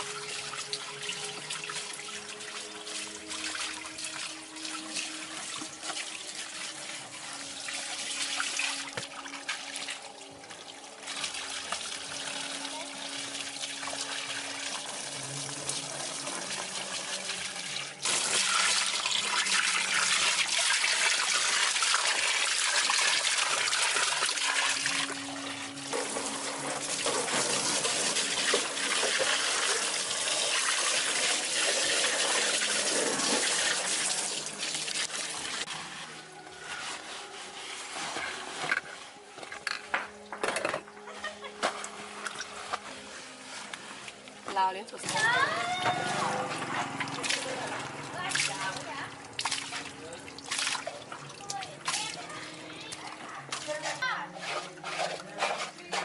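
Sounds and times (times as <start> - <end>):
water spraying: 11.0 - 38.7, 41.8 - 52.9.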